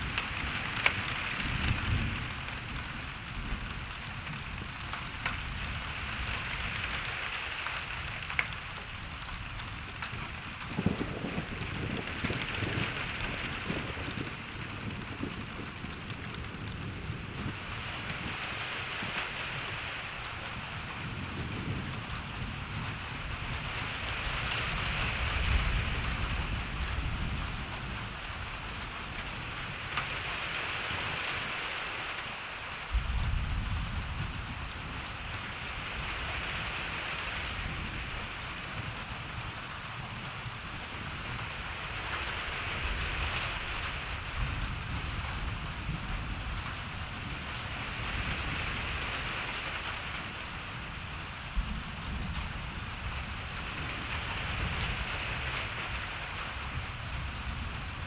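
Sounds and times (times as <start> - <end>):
steady rain falling: 0.0 - 58.0
thunder rumbling: 0.0 - 58.0.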